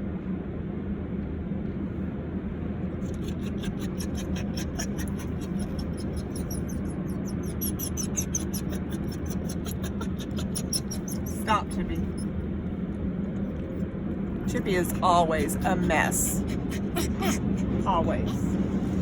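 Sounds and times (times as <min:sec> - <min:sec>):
car wash rumble and hum: 0:00.0 - 0:03.3, 0:11.4 - 0:19.0.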